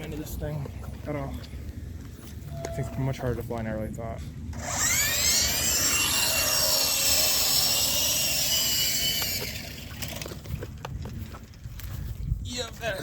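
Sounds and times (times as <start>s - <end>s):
toy helicopter motor whining: 4.6s - 10.2s.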